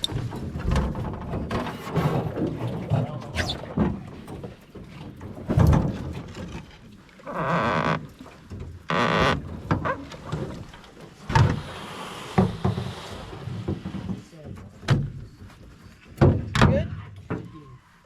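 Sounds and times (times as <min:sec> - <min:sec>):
rushing scraping sounds: 0:11.4 - 0:14.4.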